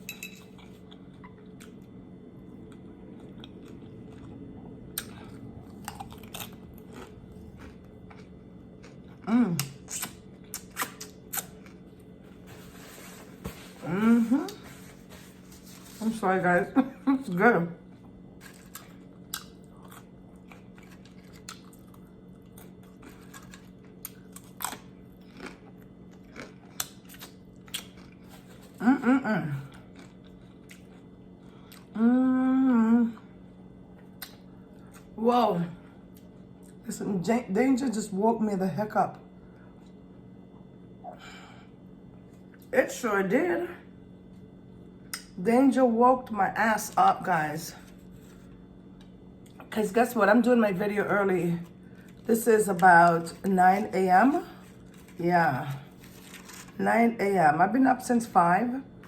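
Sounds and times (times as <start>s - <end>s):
faint steady hum: 0.0s - 59.0s
close chewing of food: 0.4s - 12.8s, 17.9s - 28.8s, 29.6s - 32.0s
wet mouth clicks: 9.6s - 11.5s.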